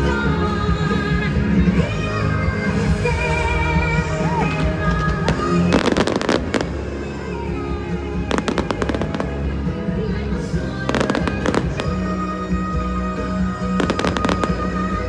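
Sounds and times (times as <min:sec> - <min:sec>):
music through loudspeakers: 0:00.0 - 0:15.0
fireworks bursting and crackling: 0:04.3 - 0:07.2, 0:07.8 - 0:09.9, 0:10.8 - 0:12.2, 0:13.6 - 0:15.0.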